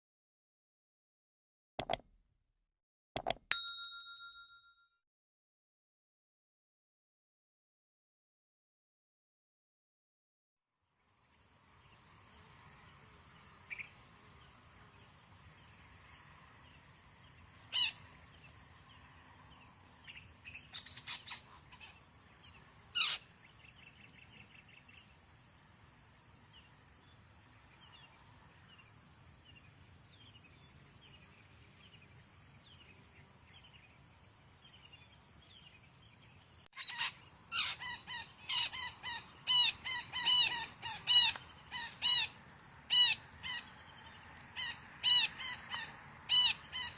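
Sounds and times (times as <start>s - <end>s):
high insect drone: 10.9s - 46.9s
parakeets calling: 23.0s - 23.2s, 36.8s - 42.3s.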